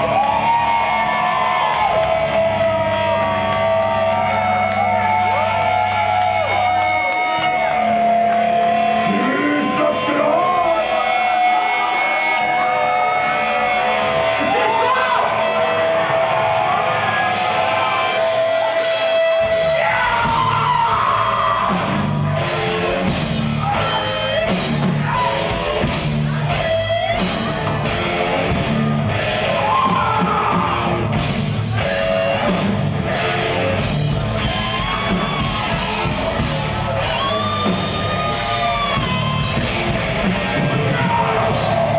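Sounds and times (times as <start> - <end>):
death metal band playing live: 0.0 - 41.9
shouted and sung vocals: 8.9 - 22.5.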